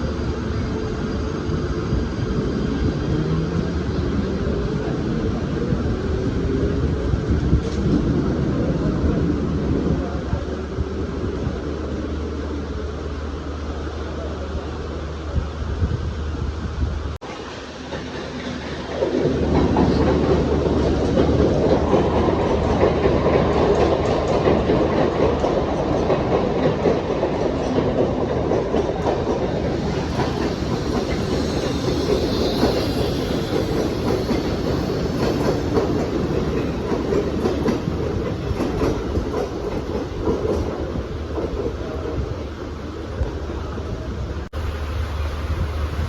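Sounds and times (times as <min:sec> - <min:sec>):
train wheels clattering over rail joints: 0:17.8 - 0:43.6.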